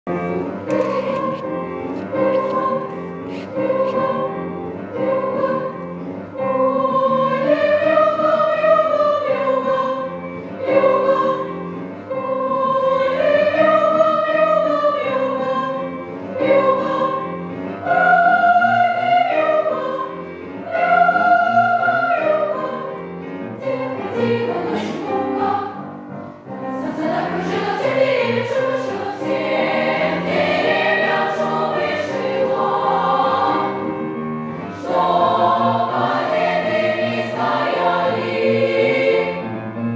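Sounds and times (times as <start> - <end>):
choir singing: 0.1 - 39.9.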